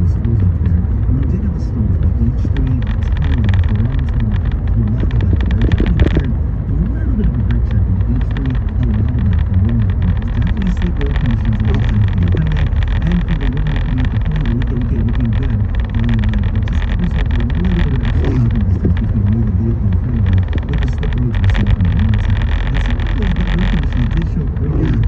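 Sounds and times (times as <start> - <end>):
engine and road rumble: 0.0 - 25.0.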